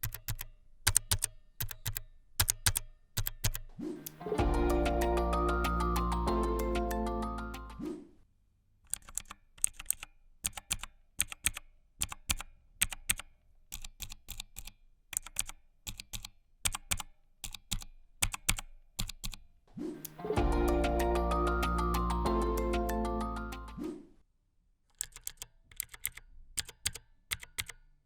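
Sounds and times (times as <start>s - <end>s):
mechanical keyboard clicks: 0.0s - 3.7s, 8.9s - 19.4s, 25.0s - 27.8s
music: 3.8s - 7.9s, 19.8s - 24.0s.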